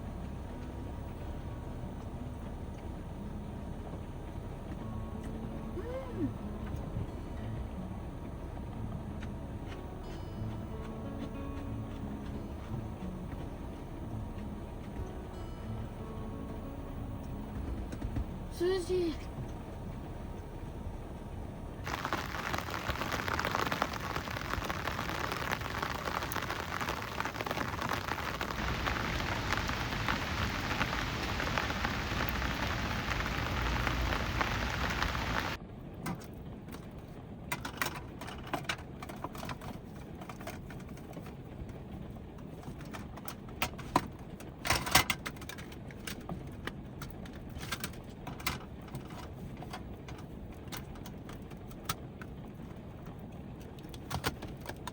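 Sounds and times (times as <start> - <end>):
heavy rain pouring: 17.3 - 35.6
scattered ticks and knocks: 17.4 - 18.4.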